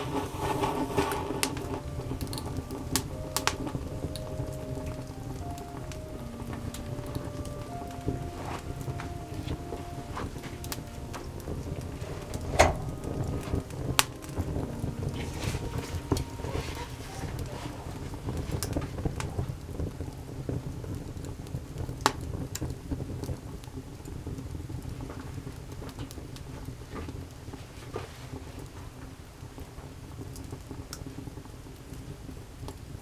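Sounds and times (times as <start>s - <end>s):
low rumble: 0.0s - 19.3s
campfire crackling: 0.0s - 33.0s
fire popping: 0.0s - 33.0s.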